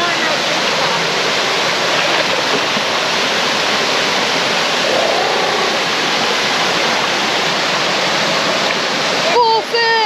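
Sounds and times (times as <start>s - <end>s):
rushing creek and waterfall: 0.0s - 10.0s.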